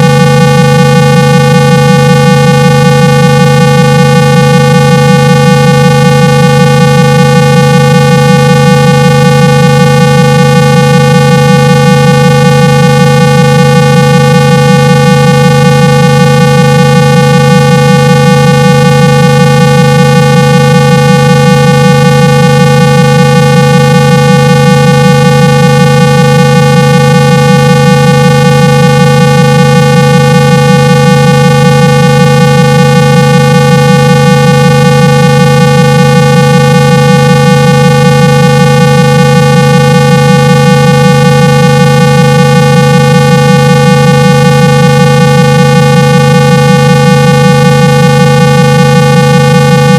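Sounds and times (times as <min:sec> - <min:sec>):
buzzy low test tone: 0:00.0 - 0:49.9.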